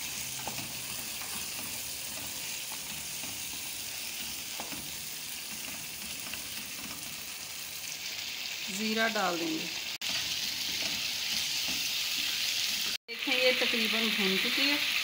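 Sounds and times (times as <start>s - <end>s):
meat sizzling in a wok: 0.0s - 15.0s
wooden spatula scraping a pan: 10.0s - 12.9s.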